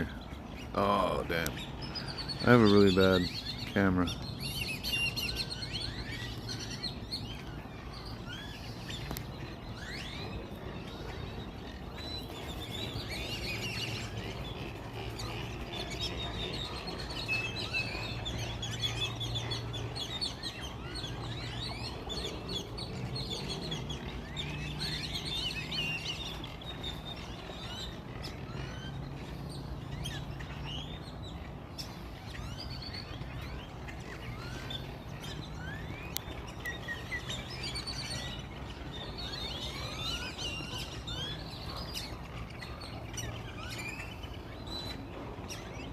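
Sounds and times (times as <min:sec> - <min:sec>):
small birds chirping and twittering: 0:00.0 - 0:45.9
steady low hum: 0:00.0 - 0:45.9.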